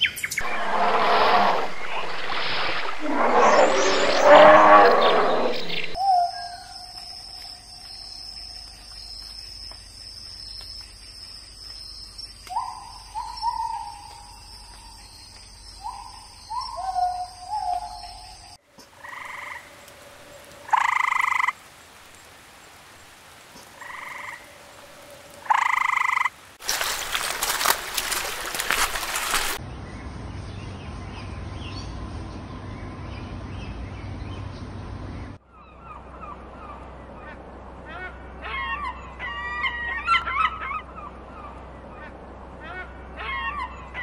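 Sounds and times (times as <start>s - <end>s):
loud rushing hiss: 0.4s - 6.0s
low steady rumble: 0.4s - 6.0s
frog croaking: 20.7s - 21.5s, 25.4s - 26.3s.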